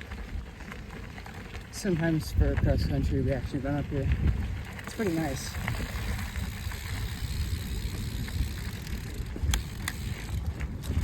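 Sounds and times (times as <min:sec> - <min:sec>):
bike tyre and frame noise: 0:00.0 - 0:11.0
wind rumble on microphone: 0:00.0 - 0:11.0.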